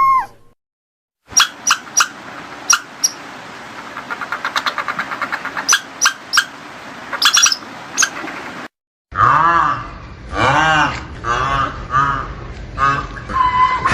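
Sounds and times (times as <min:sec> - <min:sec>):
small animal chirping: 0:01.4 - 0:02.1, 0:02.7 - 0:03.2, 0:04.0 - 0:06.5, 0:07.2 - 0:08.2.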